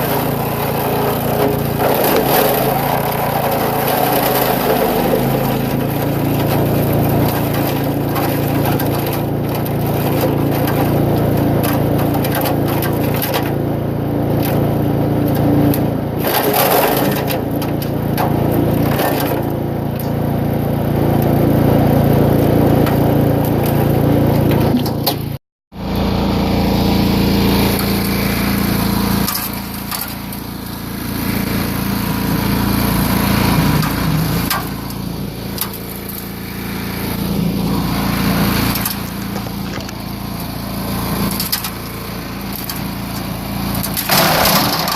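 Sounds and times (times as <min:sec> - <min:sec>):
wood cracking and splintering: 0:00.0 - 0:13.6, 0:14.3 - 0:20.2, 0:38.6 - 0:40.5, 0:41.2 - 0:44.9
chipper shredder engine running: 0:00.0 - 0:44.9.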